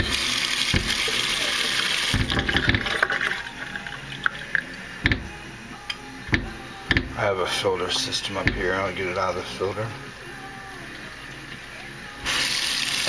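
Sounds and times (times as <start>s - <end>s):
water running from tap into container: 0.0s - 5.3s, 12.2s - 13.0s.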